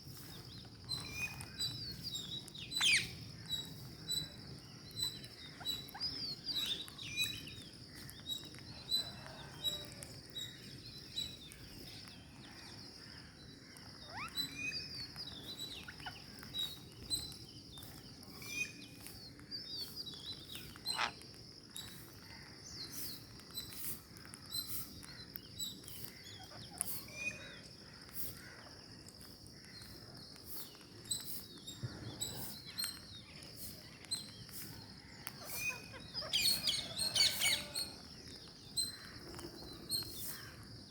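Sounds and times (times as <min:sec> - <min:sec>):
parakeets chirping and squawking: 0:02.8 - 0:03.1, 0:14.1 - 0:14.4, 0:20.9 - 0:21.2, 0:35.3 - 0:38.0.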